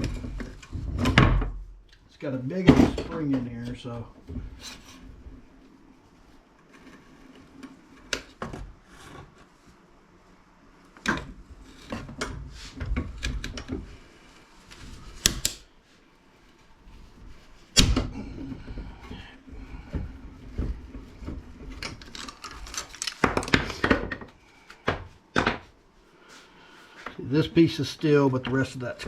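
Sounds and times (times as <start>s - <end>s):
tools and parts clicking and rattling: 21.7s - 24.3s.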